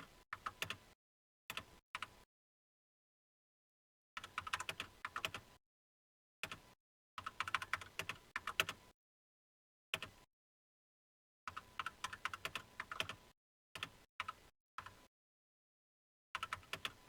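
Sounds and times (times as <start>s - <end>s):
computer keyboard typing: 4.2s - 5.4s, 7.2s - 8.8s, 11.5s - 13.2s, 16.4s - 17.0s.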